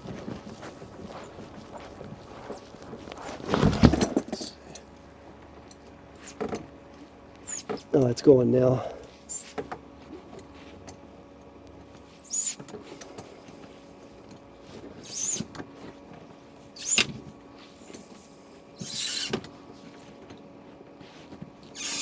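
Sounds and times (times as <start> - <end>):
plumbing fitting creaking and squeaking: 6.2 - 6.6, 7.4 - 8.0, 9.3 - 9.7, 12.2 - 12.7, 16.8 - 17.1, 18.8 - 19.4.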